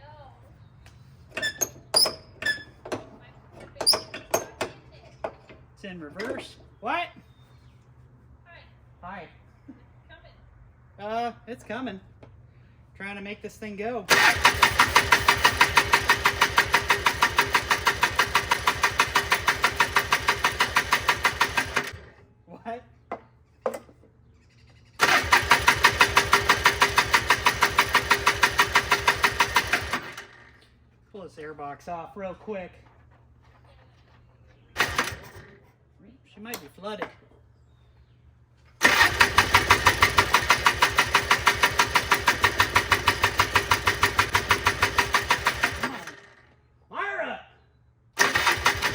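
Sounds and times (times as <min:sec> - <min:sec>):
engine cranking without starting: 0:14.1 - 0:22.2, 0:24.9 - 0:30.6, 0:34.8 - 0:35.7, 0:38.7 - 0:46.6, 0:48.2 - 0:48.9.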